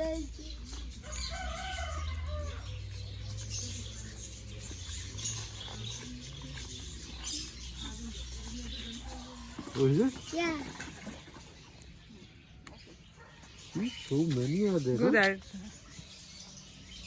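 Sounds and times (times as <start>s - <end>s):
rooster crowing: 1.0s - 2.8s.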